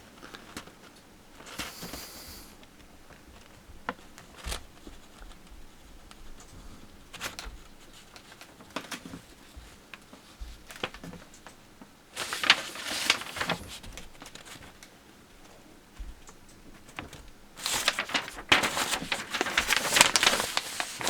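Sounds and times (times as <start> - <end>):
paper rustling: 3.1 - 14.9, 16.0 - 21.0.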